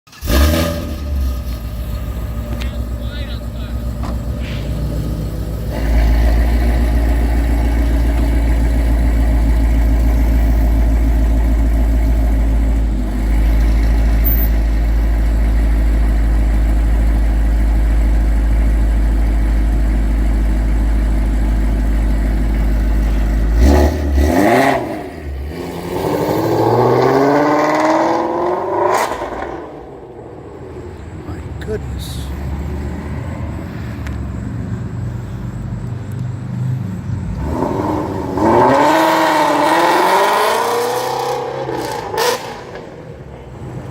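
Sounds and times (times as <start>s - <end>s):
car engine revving and accelerating: 0.1s - 15.3s, 22.0s - 30.7s, 37.2s - 43.9s.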